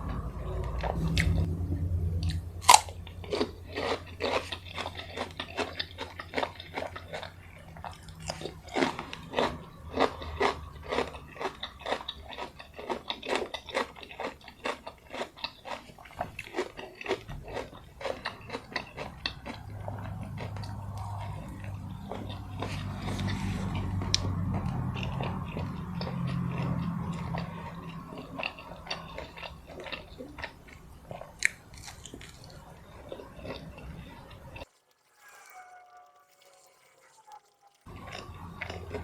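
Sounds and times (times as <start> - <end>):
chewing crunchy food: 0.0 - 39.0.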